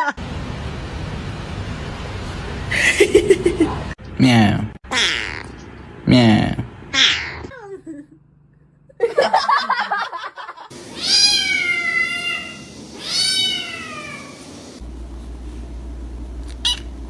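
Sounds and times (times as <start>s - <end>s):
cat meowing: 4.9s - 5.5s, 6.9s - 7.5s, 10.9s - 14.4s
steady low hum: 14.8s - 17.0s.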